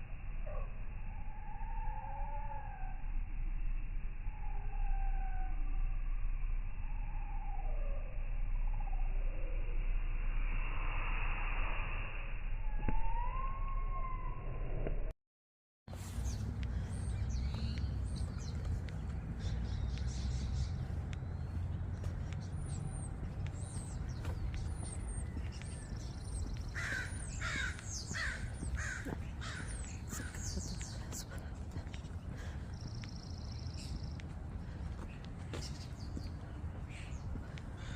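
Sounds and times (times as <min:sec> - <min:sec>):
steady low rumble: 0:00.0 - 0:15.1, 0:15.9 - 0:37.9
small birds chirping: 0:15.9 - 0:37.9
loud harsh bird calls: 0:16.0 - 0:31.3, 0:32.1 - 0:37.9.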